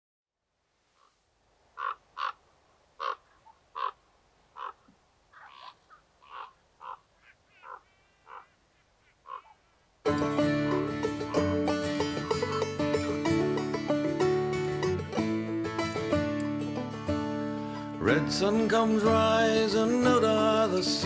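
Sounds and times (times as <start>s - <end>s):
birds calling: 1.0s - 13.0s
acoustic banjo music: 10.0s - 21.0s.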